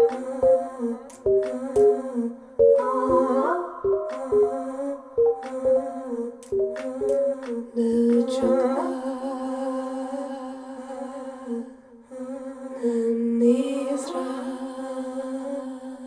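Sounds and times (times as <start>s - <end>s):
light percussive clicks: 1.1s - 1.9s, 6.4s - 8.3s.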